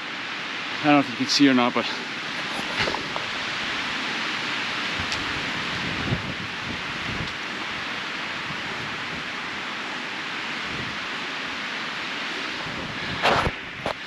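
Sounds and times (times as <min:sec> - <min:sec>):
strong wind blowing: 0:00.7 - 0:14.0.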